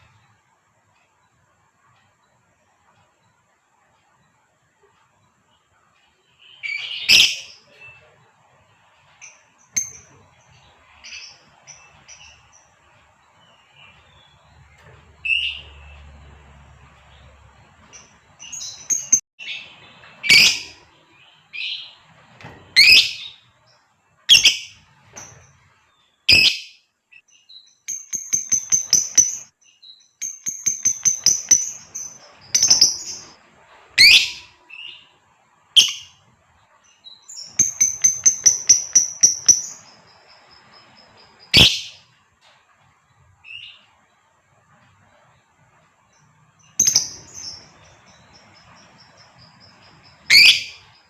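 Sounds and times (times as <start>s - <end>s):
lovebird chattering: 20.2s - 20.8s, 27.9s - 29.5s, 30.2s - 33.3s, 37.4s - 40.1s, 46.8s - 48.8s, 50.1s - 50.9s.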